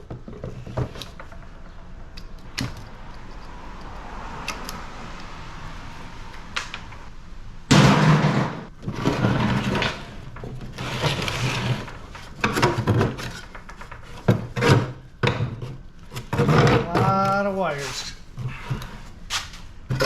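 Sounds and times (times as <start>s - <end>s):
metal parts scraping and rattling: 7.7s - 20.0s.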